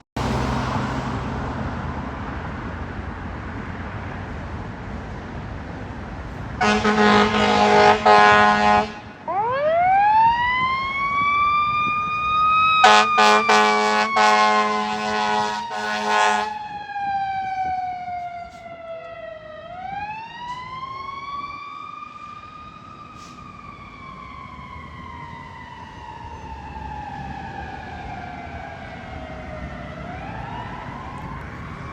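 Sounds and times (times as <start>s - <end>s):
fire engine siren wailing: 6.3s - 31.9s
loud air horn blast: 6.6s - 9.3s, 12.8s - 16.6s.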